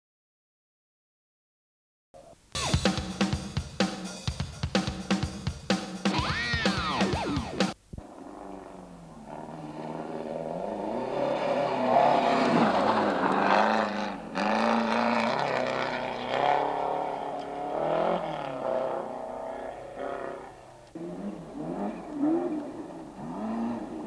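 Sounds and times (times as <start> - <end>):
rally car engine revving: 6.1 - 24.0.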